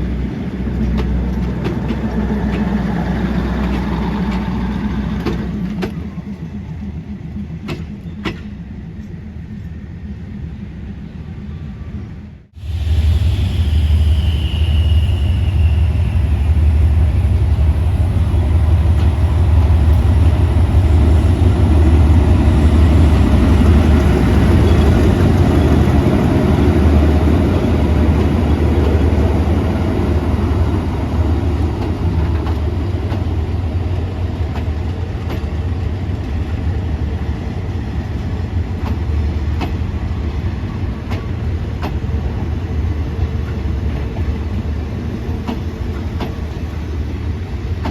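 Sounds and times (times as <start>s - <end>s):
train rumbling on track: 0.0s - 47.9s
wheels clicking over rail joints: 0.4s - 9.1s, 31.6s - 36.8s, 37.7s - 39.9s, 41.0s - 42.5s, 43.4s - 46.8s, 47.7s - 47.9s.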